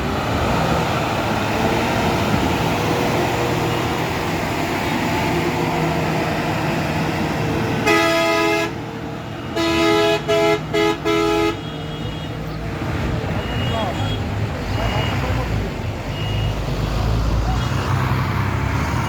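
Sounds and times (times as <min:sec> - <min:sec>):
heavy vehicle engines running: 0:00.0 - 0:19.0
two-tone vehicle horn honking: 0:07.8 - 0:08.8, 0:09.4 - 0:12.5.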